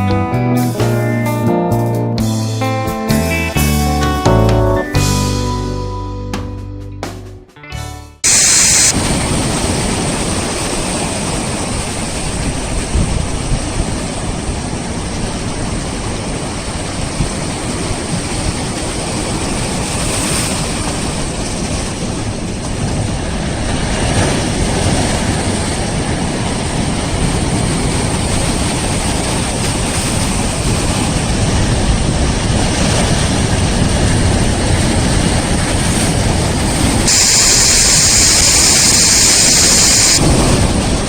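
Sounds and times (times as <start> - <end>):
wind rumbling on microphone: 12.0 - 19.8.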